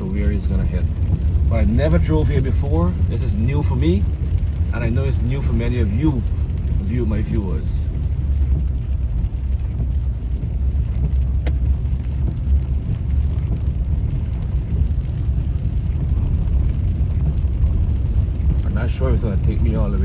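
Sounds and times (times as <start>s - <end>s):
car cabin rumble: 0.0s - 20.0s.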